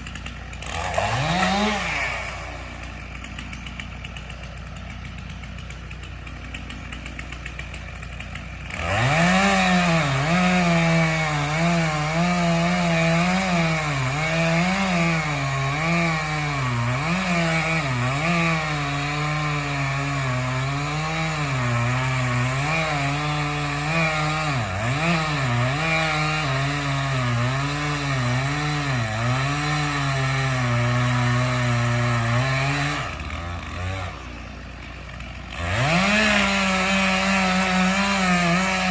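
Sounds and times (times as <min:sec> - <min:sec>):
tractor engine idling: 0:00.0 - 0:12.1, 0:33.1 - 0:37.4
chainsaw cutting wood: 0:00.0 - 0:38.9.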